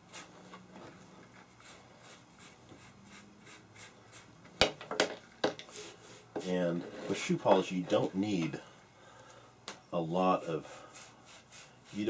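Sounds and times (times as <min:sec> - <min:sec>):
leather rubbing strokes: 0:00.0 - 0:04.3.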